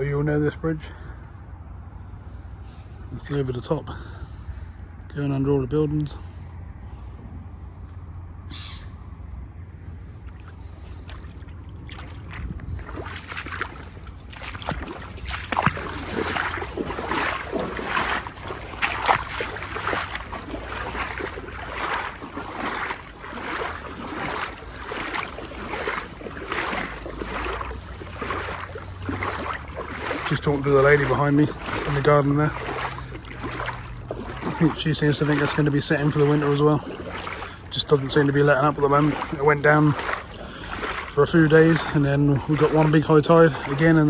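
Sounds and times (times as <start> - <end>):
legs wading through water: 9.8 - 44.0
water splashing: 10.2 - 44.0.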